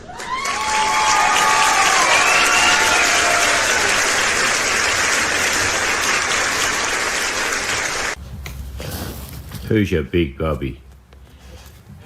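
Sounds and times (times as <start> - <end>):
crowd applauding: 0.0 - 8.2.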